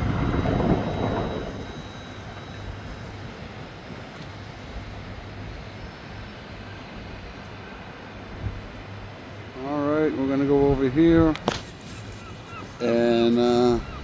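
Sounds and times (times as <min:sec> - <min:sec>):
steady low rumble: 0:00.0 - 0:09.6.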